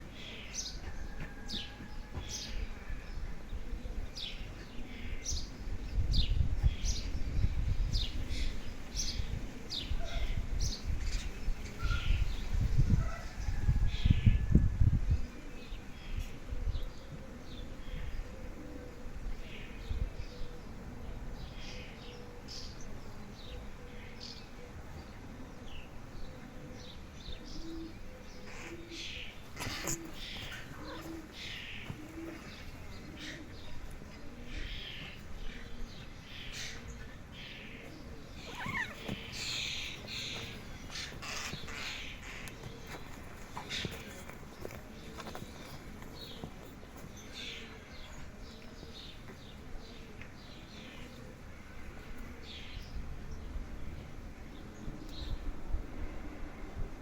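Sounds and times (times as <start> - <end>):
small birds chirping: 21.4 - 51.5
bird chirping: 34.8 - 49.5.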